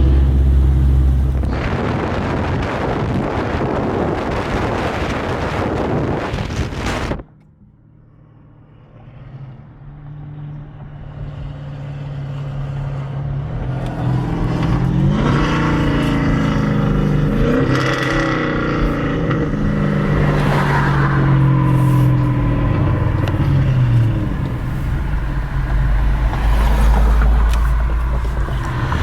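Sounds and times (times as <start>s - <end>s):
wind noise: 0.0s - 7.4s, 13.6s - 29.0s
car engines revving: 0.0s - 29.0s.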